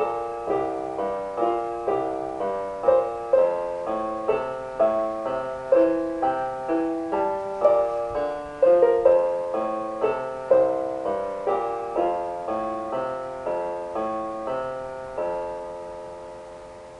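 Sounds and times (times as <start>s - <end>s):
solo piano music: 0.0s - 16.9s.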